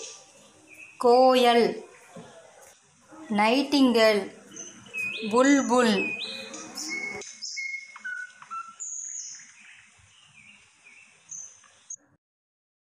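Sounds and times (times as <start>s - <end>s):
birds chirping and whistling: 0.0s - 1.0s, 4.4s - 11.9s.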